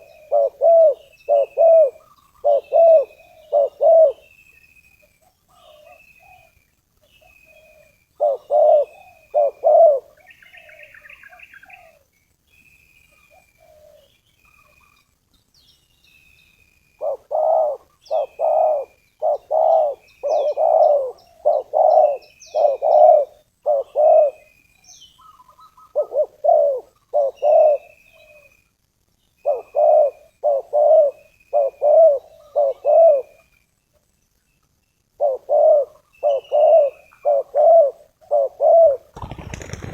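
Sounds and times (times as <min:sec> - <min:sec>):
dove cooing: 0:00.0 - 0:04.3, 0:07.2 - 0:12.0, 0:17.0 - 0:24.5, 0:25.2 - 0:28.5, 0:29.4 - 0:33.4, 0:35.2 - 0:39.9
small bird chirping: 0:00.0 - 0:38.6.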